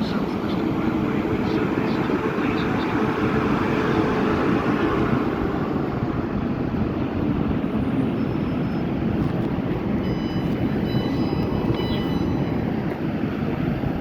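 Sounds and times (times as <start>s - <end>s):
electric train rumble: 0.0s - 14.0s.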